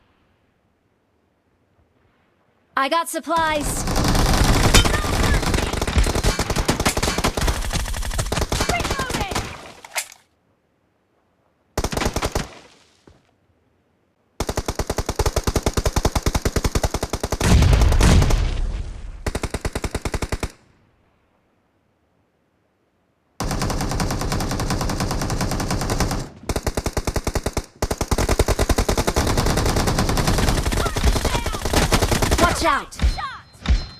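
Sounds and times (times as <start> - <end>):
video game automatic gunfire: 3.4 - 9.6, 23.4 - 32.8.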